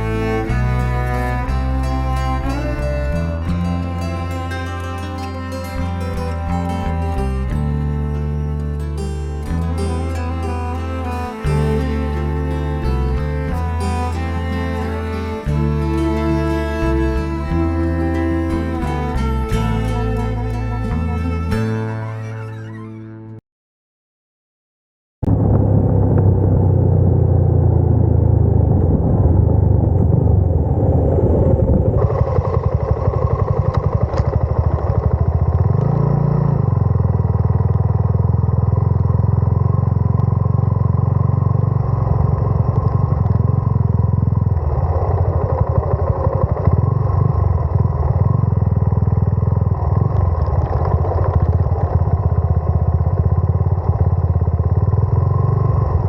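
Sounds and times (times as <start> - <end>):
motorcycle engine running: 0.0 - 22.2, 25.2 - 30.6, 31.5 - 56.0.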